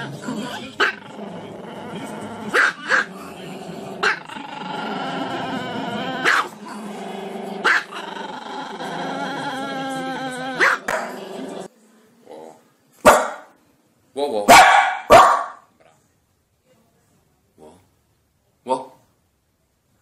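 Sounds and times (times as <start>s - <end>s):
dog yelping barks: 6.2s - 6.5s, 10.6s - 11.0s, 13.1s - 13.5s, 14.5s - 15.6s
dog howling: 8.5s - 10.9s.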